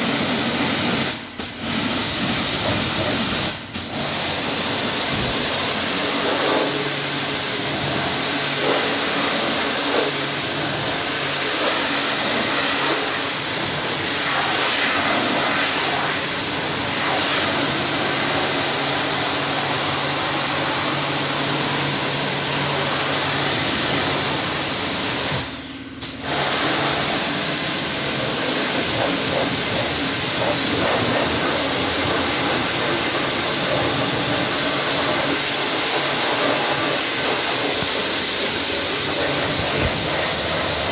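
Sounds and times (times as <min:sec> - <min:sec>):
pressure washer spraying water: 0:00.0 - 0:40.9
washer pump humming: 0:26.2 - 0:40.9.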